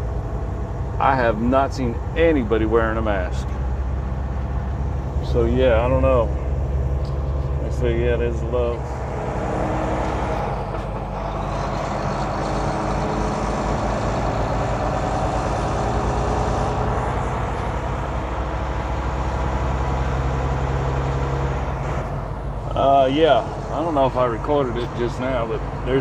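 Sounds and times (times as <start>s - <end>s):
diesel truck engine: 0.0s - 26.0s
road noise: 0.0s - 26.0s.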